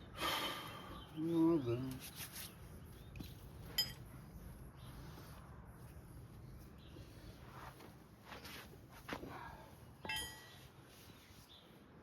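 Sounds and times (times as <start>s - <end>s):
metal tool clinking: 3.7s - 4.1s, 10.0s - 10.6s.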